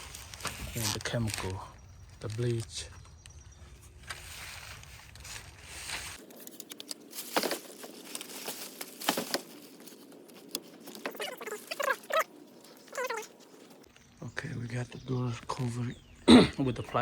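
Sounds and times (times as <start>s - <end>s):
plastic sheeting crinkling: 0.0s - 2.8s, 4.0s - 13.9s.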